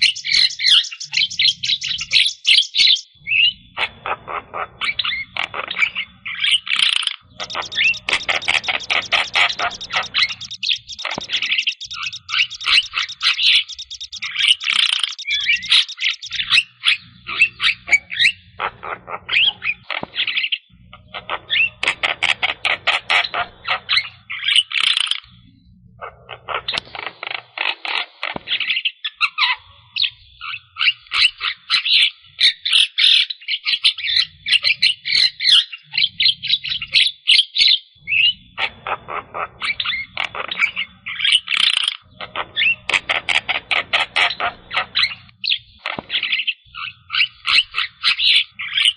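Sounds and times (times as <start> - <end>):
myna singing chattering notes: 7.3 - 16.5.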